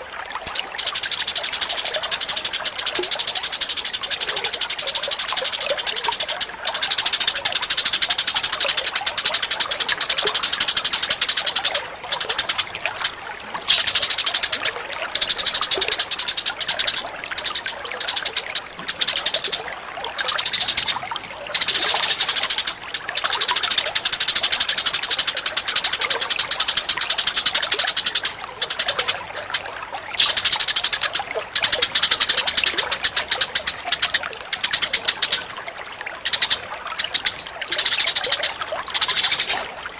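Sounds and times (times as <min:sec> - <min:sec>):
birds chattering trills: 0:00.0 - 0:39.9.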